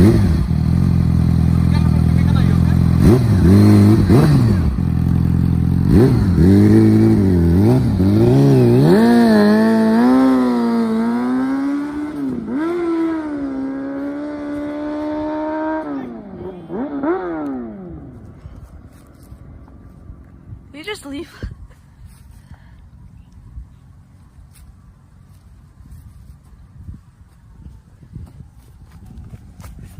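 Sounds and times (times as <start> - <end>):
motorcycle engine revving: 0.0 - 19.3.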